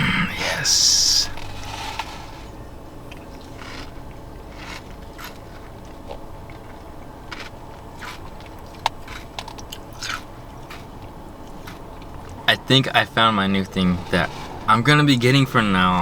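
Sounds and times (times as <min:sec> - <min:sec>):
mouth sounds: 0:00.0 - 0:01.6
low steady background hum: 0:00.0 - 0:16.0.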